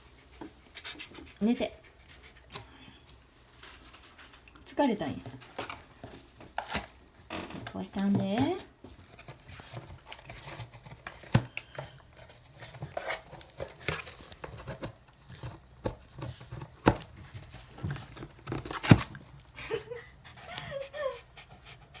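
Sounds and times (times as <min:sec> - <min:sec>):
dog scratching and tearing bed: 0:16.2 - 0:19.4.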